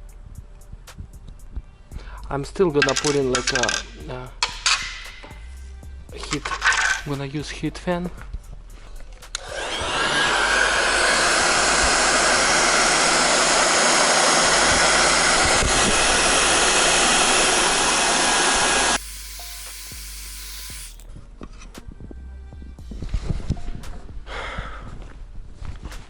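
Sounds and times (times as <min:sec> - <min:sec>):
hot-air blower hissing: 0:09.4 - 0:21.0.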